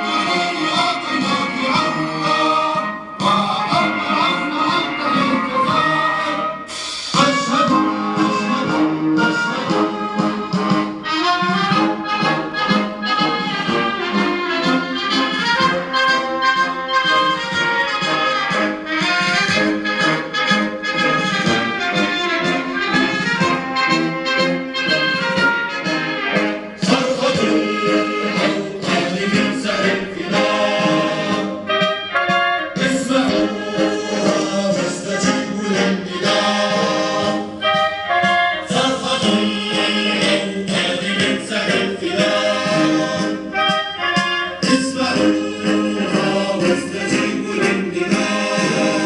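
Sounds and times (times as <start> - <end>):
group singing in chorus: 0.0 - 10.8, 26.7 - 31.9, 32.7 - 37.9, 38.6 - 43.8, 44.6 - 49.0
brass instrumental music: 0.0 - 49.0.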